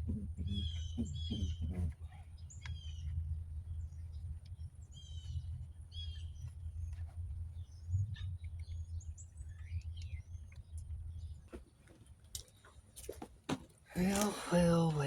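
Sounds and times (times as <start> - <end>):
low rumble: 0.0 - 11.5
small birds chirping: 0.0 - 13.2.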